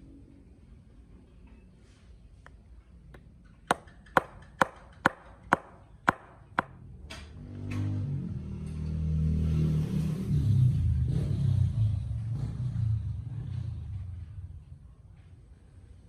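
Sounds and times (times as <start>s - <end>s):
hammer striking metal: 3.6s - 6.8s.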